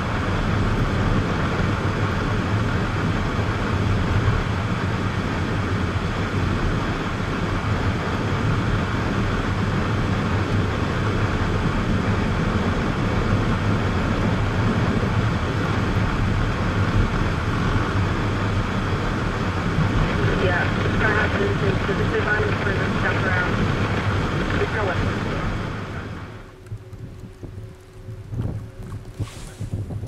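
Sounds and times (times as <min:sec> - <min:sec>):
car engine and tyres rumbling: 0:00.0 - 0:30.0.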